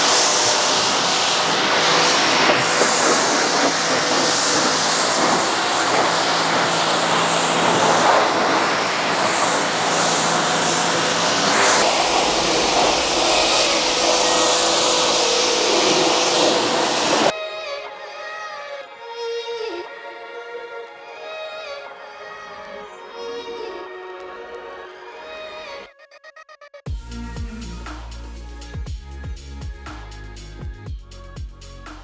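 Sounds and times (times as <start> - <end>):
low rumble: 0.0 - 17.3
pressure washer spray hiss: 0.0 - 17.3
pump motor hum: 0.0 - 17.3.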